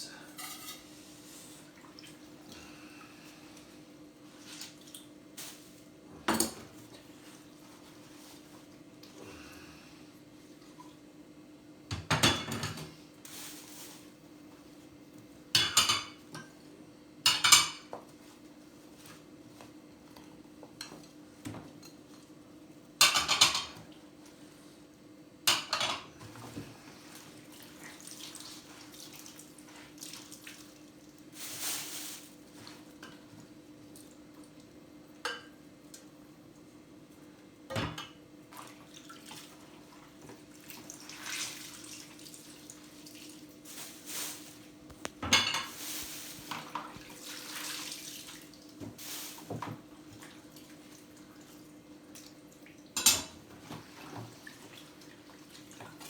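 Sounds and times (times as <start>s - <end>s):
wet china and cutlery clattering: 0.3s - 0.9s, 23.0s - 23.8s, 53.0s - 53.4s.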